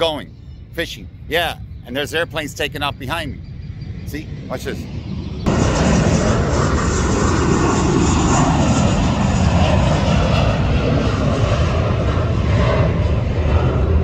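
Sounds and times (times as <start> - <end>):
airplane engines taking off: 0.0 - 14.0.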